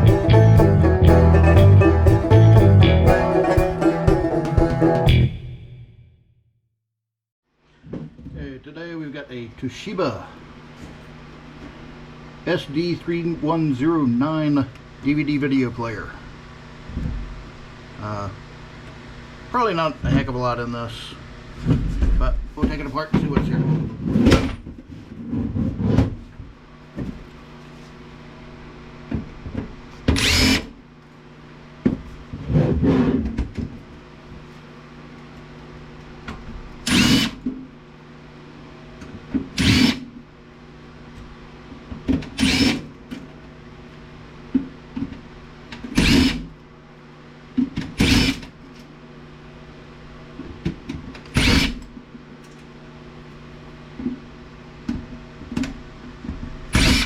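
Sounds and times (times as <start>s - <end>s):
cordless drill spinning screws: 30.2s - 30.7s, 36.9s - 37.4s, 39.6s - 40.0s, 42.4s - 42.8s, 46.0s - 46.4s, 48.0s - 48.4s, 51.3s - 51.7s, 56.8s - 57.0s.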